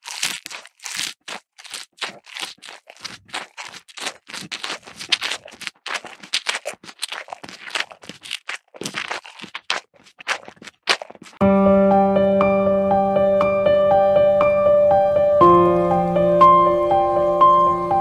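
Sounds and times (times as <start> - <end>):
rapid crunching: 0.0 - 11.4.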